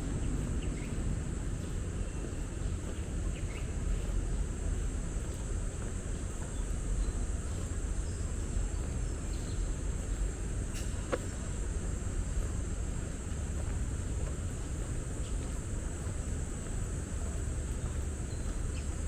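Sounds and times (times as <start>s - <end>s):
low rumble of urban traffic: 0.0s - 19.0s.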